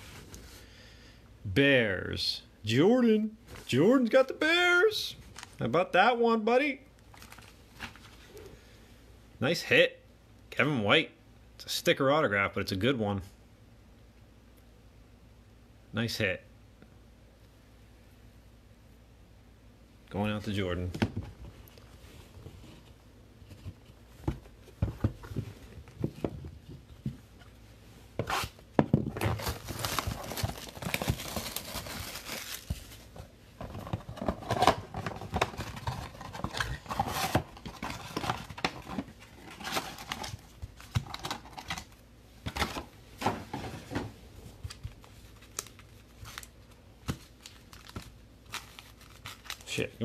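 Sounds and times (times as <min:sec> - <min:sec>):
card wrappers crinkling and tearing: 0:07.1 - 0:08.1, 0:29.1 - 0:42.0, 0:44.7 - 0:49.9.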